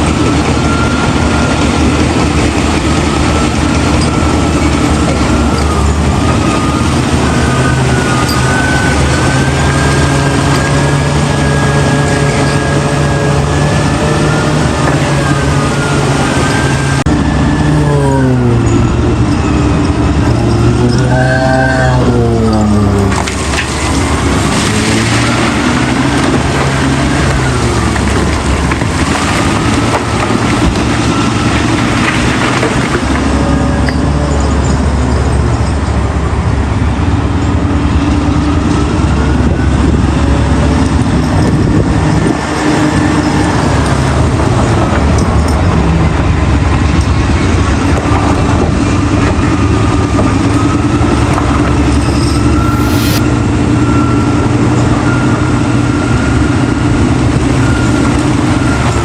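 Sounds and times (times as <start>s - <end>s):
big diesel engine running: 0.0s - 59.0s
higher whine gliding up and down: 3.0s - 28.9s, 50.4s - 53.5s.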